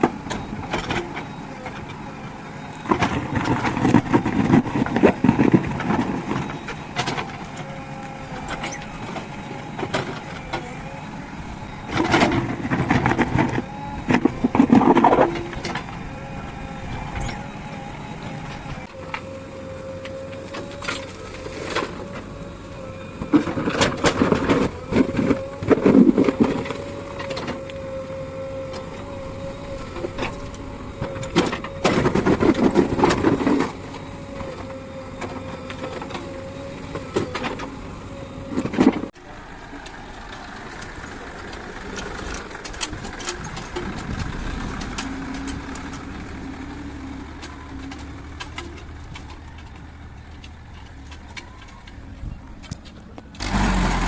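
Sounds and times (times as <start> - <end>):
diesel machinery engine hum: 0.0 - 54.0
loud bursts of machinery noise: 53.4 - 54.0.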